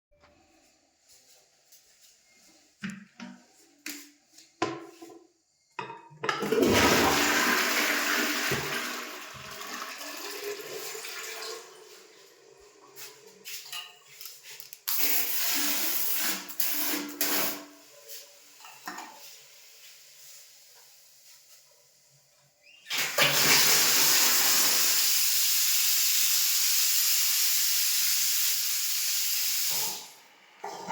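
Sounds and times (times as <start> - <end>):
toilet flushing: 6.3 - 13.6, 14.9 - 20.4, 22.8 - 30.9.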